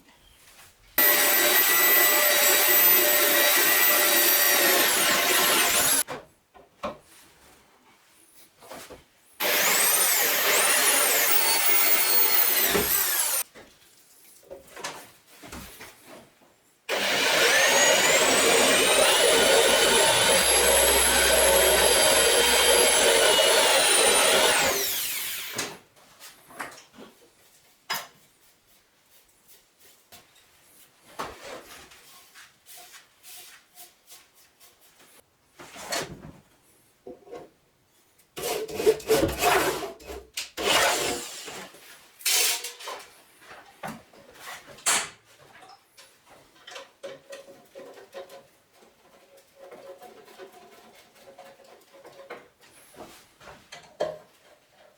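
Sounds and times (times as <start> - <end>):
angle grinder whining: 1.0 - 6.0, 9.4 - 13.4, 16.9 - 25.7.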